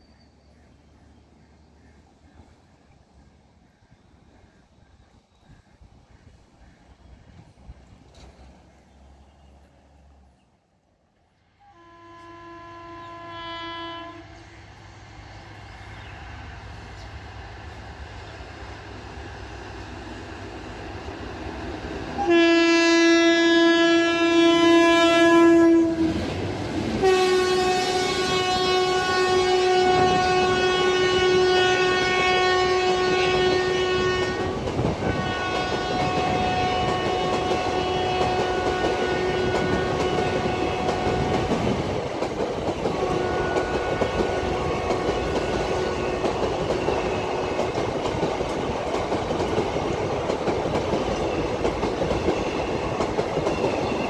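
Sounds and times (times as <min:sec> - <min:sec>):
loud train air horn: 0:11.6 - 0:14.7, 0:22.1 - 0:26.3, 0:27.0 - 0:41.6, 0:42.9 - 0:46.2
locomotive rumble: 0:12.0 - 0:54.0
coaches rattling clickety-clack: 0:34.4 - 0:54.0.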